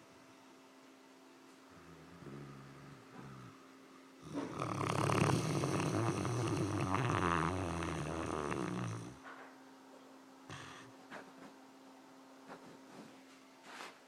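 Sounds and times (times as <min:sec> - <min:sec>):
dog snoring: 0:01.7 - 0:03.6, 0:04.2 - 0:09.3, 0:10.5 - 0:11.2.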